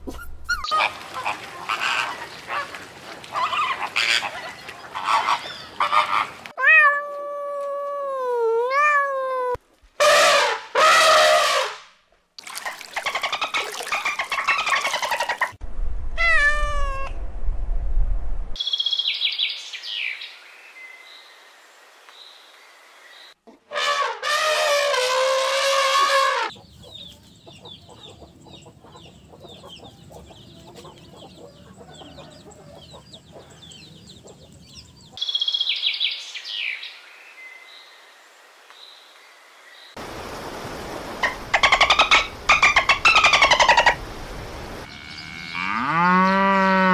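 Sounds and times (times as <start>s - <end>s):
cat meowing: 6.6s - 9.6s, 16.2s - 17.2s
small birds chirping: 26.5s - 38.1s
loud pitched animal calls: 41.2s - 44.0s.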